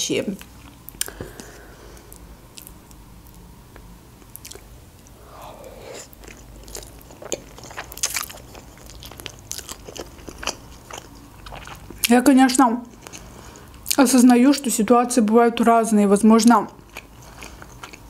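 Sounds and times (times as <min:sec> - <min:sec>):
person chewing food: 0:00.4 - 0:12.1, 0:12.9 - 0:14.0, 0:16.7 - 0:18.0.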